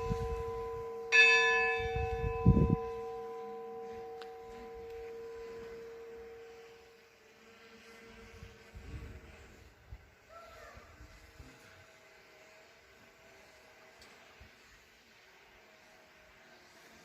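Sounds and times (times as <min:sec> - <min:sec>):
church bell ringing: 0:00.0 - 0:07.0.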